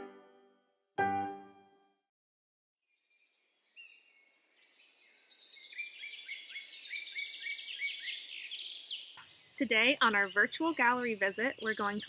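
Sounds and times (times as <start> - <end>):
birds chirping and singing: 3.1 - 12.0.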